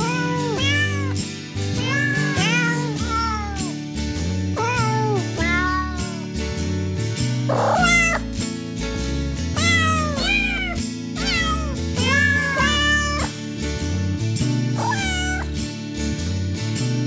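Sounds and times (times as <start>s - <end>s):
cats meowing: 0.0s - 3.7s, 4.6s - 6.2s, 7.5s - 8.3s, 9.6s - 13.3s, 14.8s - 15.6s.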